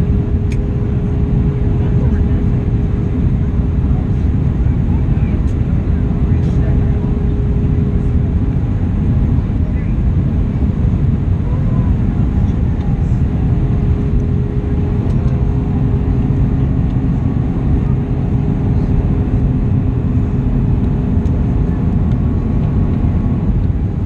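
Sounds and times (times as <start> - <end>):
airliner cabin engine rumble: 0.0 - 24.0
steady hum: 0.0 - 24.0.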